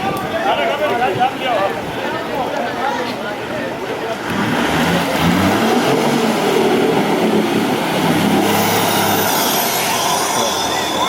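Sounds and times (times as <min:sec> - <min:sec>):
engine revving hard: 0:04.3 - 0:10.7.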